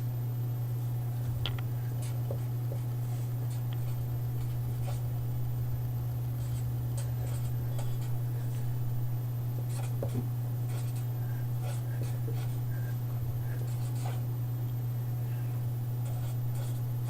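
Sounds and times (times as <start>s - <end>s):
steady low hum: 0.0s - 17.0s
marker scratching on paper: 6.4s - 8.2s, 9.7s - 14.2s, 16.0s - 16.8s.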